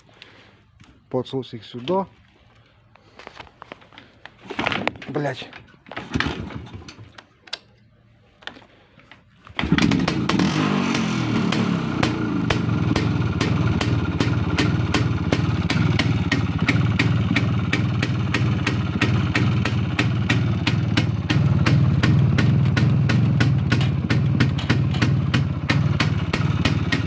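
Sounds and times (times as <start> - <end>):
motorcycle engine starting and running: 6.0 - 7.2, 9.6 - 27.0.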